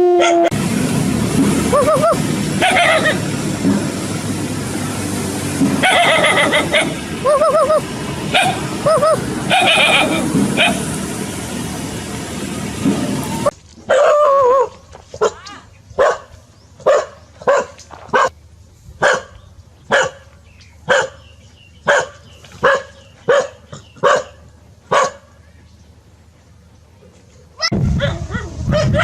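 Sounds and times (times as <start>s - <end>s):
dog whining: 1.8s - 3.2s, 8.4s - 10.8s
dog barking: 2.6s - 3.2s, 8.4s - 8.6s, 9.5s - 10.8s, 13.9s - 15.4s, 16.0s - 18.3s, 19.0s - 20.3s, 20.9s - 21.2s, 21.8s - 25.3s, 27.6s - 29.0s.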